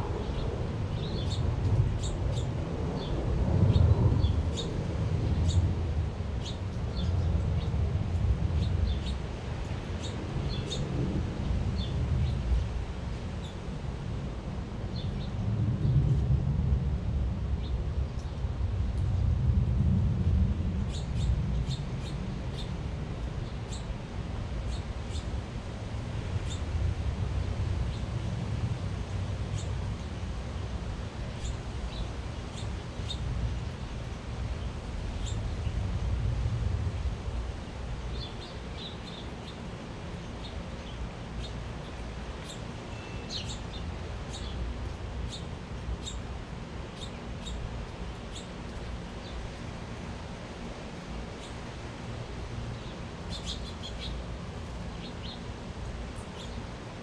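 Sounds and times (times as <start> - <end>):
steady low rumble: 0.0 - 42.8
small birds chirping: 0.2 - 1.4, 2.0 - 5.6, 6.4 - 7.8, 8.5 - 10.9, 20.9 - 22.8, 23.4 - 25.3, 26.4 - 26.7, 29.5 - 30.1, 31.2 - 33.8, 34.6 - 35.8, 38.1 - 50.2, 50.9 - 56.8.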